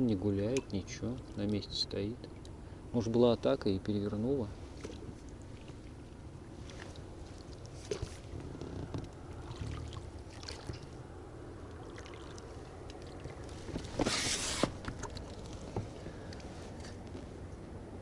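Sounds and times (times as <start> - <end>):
knocks and clicks on inflatable boat: 7.8 - 9.8, 12.8 - 16.0.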